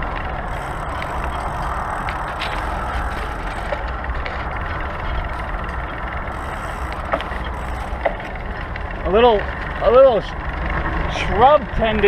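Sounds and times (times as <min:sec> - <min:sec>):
bicycle tyre noise on road: 0:00.0 - 0:12.0
rushing wind: 0:00.0 - 0:12.0.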